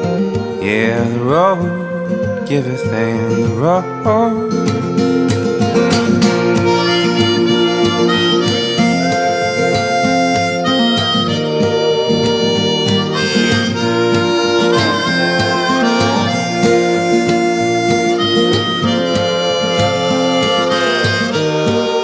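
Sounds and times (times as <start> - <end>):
acoustic guitar accompaniment: 0.0 - 22.0
harmonica melody: 0.0 - 22.0.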